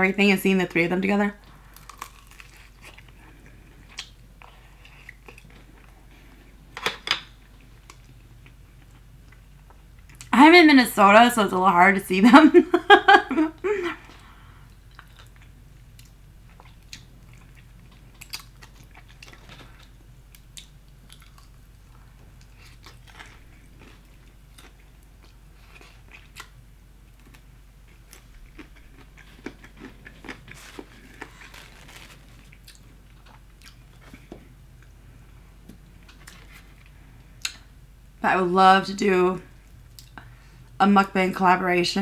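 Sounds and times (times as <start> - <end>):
crunchy chewing of fried chicken: 1.4 - 10.3, 13.9 - 37.7.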